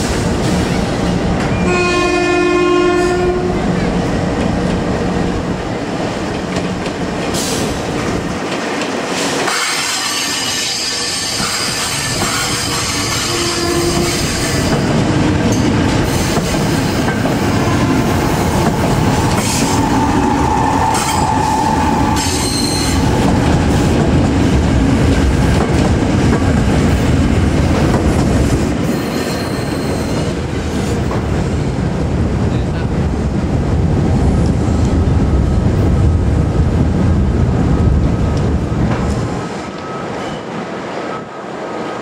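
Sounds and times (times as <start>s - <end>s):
train wheels rumbling: 0.0s - 42.0s
rail joint clicks: 6.0s - 31.4s
train wheel squeals: 9.5s - 14.8s, 19.3s - 23.1s, 28.8s - 30.4s, 39.7s - 40.5s.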